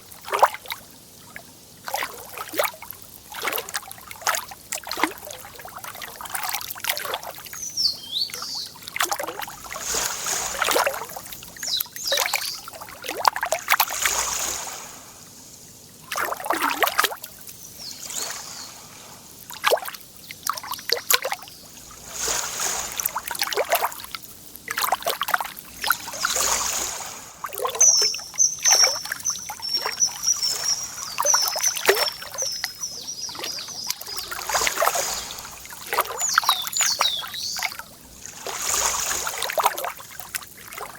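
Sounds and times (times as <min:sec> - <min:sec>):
lake water lapping and splashing: 0:00.0 - 0:40.9
rapid high bird twittering: 0:07.5 - 0:08.9, 0:09.5 - 0:12.9, 0:17.5 - 0:19.2, 0:20.7 - 0:23.2, 0:26.0 - 0:37.8
songbird chirping: 0:07.5 - 0:13.2, 0:17.4 - 0:19.3, 0:25.8 - 0:37.9.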